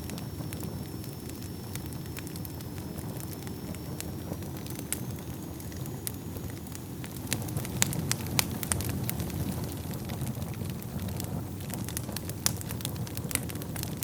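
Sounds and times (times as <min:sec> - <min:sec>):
burning logs crackling and popping: 0:00.0 - 0:14.0
low rumble of flames: 0:00.0 - 0:14.0.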